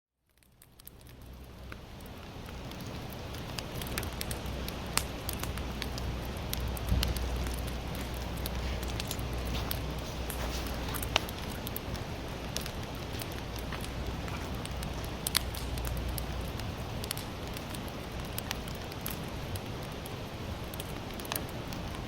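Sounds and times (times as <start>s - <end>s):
burning wood crackling and popping: 0.2s - 22.0s
campfire hissing: 0.4s - 22.0s.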